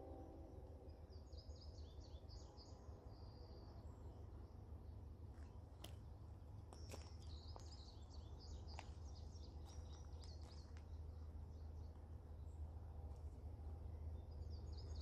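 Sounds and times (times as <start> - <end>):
low background rumble: 2.3 - 15.0
songbird chirping: 6.7 - 13.2, 13.8 - 15.0.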